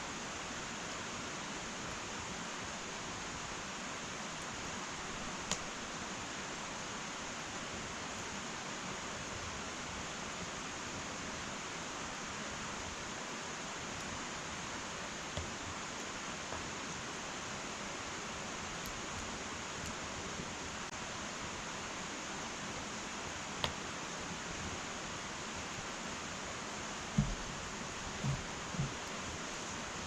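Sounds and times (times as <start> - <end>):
wood fire hissing: 0.0 - 30.0
fire crackling and popping: 5.2 - 5.8.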